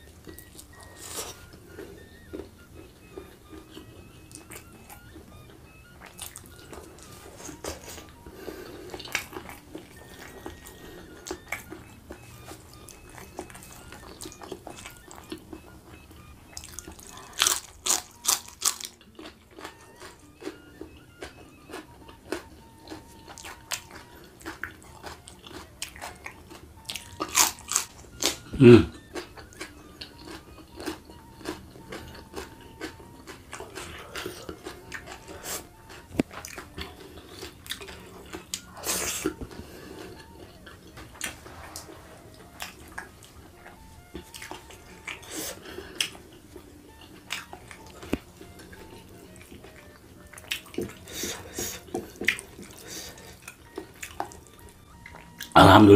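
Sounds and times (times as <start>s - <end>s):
wet chewing and mouth smacks: 0.0s - 55.6s
crunching bites of vegetables: 16.5s - 39.5s
low throat sound: 28.4s - 29.1s.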